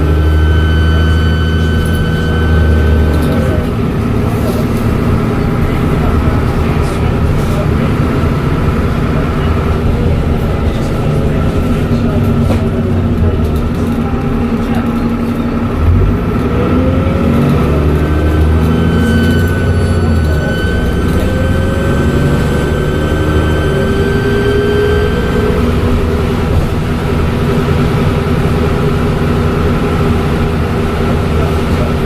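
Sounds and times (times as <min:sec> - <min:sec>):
bus engine running: 0:00.0 - 0:32.0
high-pitched turbo whistle: 0:00.2 - 0:03.3, 0:18.7 - 0:25.2.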